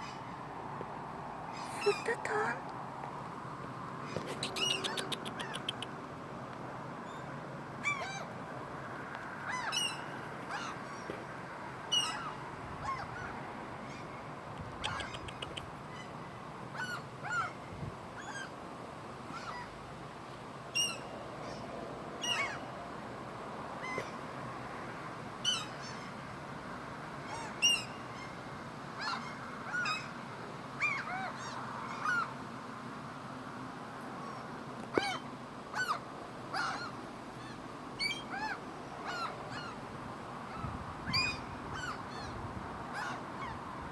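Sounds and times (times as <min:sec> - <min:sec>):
gulls calling: 0:34.2 - 0:39.8.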